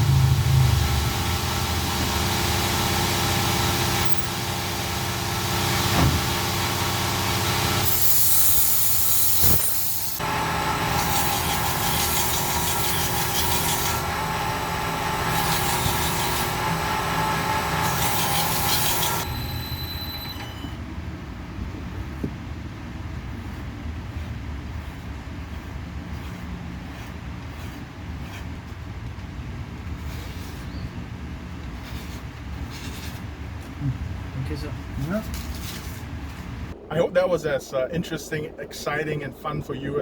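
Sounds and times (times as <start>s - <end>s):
electric knife sharpener running: 0.0s - 20.5s
knife blade grinding: 17.6s - 20.2s.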